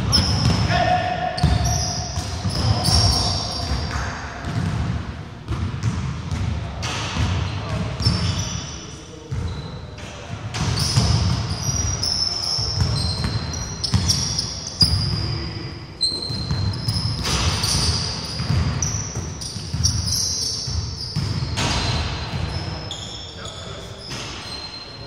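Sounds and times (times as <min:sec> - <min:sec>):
sneakers squeaking on hardwood: 0:00.0 - 0:04.7, 0:07.3 - 0:25.0
basketball bouncing on wooden floor: 0:01.4 - 0:06.5, 0:16.3 - 0:22.6.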